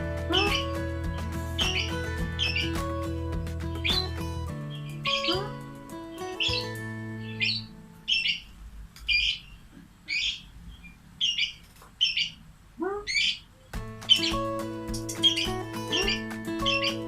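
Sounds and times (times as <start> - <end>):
background music: 0.0 - 8.4, 13.8 - 17.0
lovebird high-pitched calls: 0.3 - 0.8, 3.8 - 5.6, 6.2 - 8.5, 9.1 - 13.5, 15.1 - 17.0.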